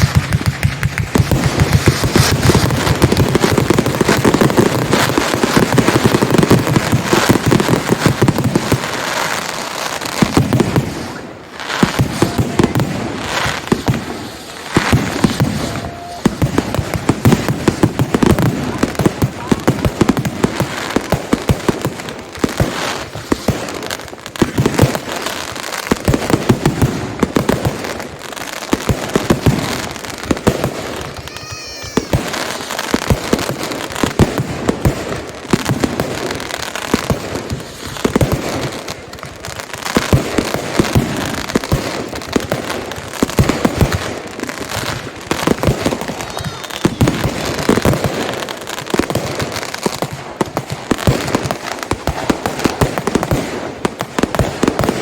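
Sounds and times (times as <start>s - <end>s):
fireworks bangs and crackling: 0.0s - 55.0s
warbling firework whistle: 15.2s - 16.5s, 30.9s - 33.1s, 45.9s - 47.7s.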